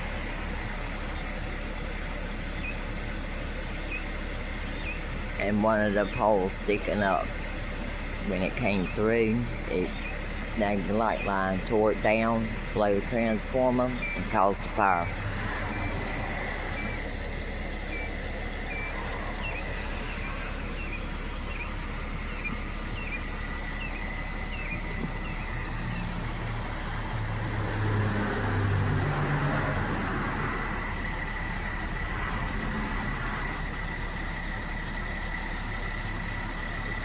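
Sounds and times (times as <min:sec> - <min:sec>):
vehicle passing by: 0:12.0 - 0:34.1.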